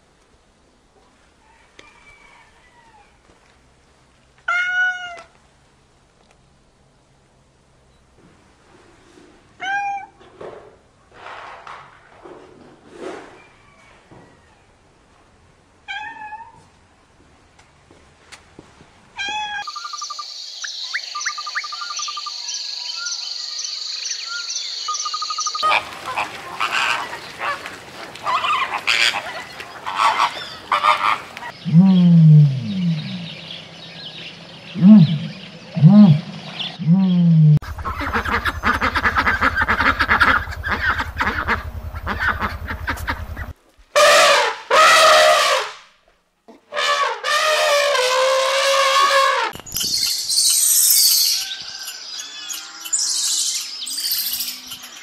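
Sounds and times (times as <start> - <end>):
cat meowing: 4.5 - 5.3, 9.6 - 10.2, 15.9 - 16.6
flamingo flock calling: 24.9 - 31.8, 37.6 - 44.1
geese honking: 25.6 - 31.6, 37.6 - 45.6
low buzz: 31.6 - 33.5, 34.7 - 43.5
low falling honks: 37.7 - 45.8.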